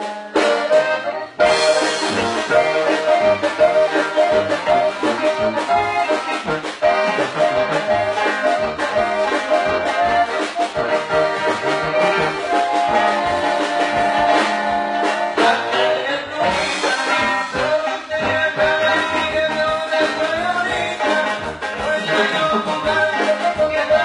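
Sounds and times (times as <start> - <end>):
band music: 0.0 - 24.0
steady bass beat: 1.4 - 15.5.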